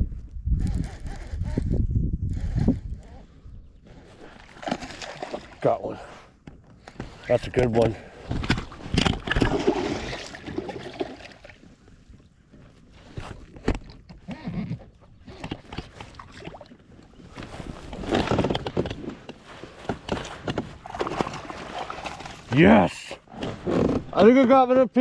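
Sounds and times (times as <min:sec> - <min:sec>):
water splashing: 0:09.0 - 0:11.6.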